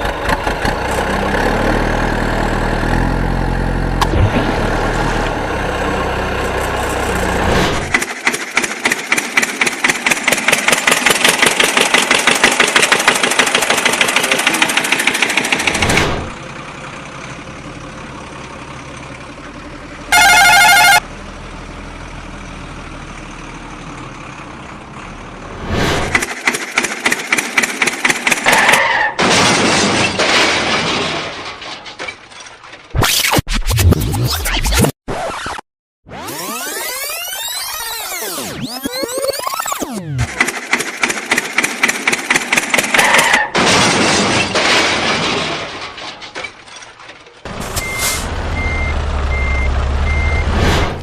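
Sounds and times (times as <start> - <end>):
engine hum: 0.0 - 28.6, 36.2 - 51.0
warbling horn-like tone: 20.1 - 21.0
cartoon engine rattle: 36.2 - 47.7.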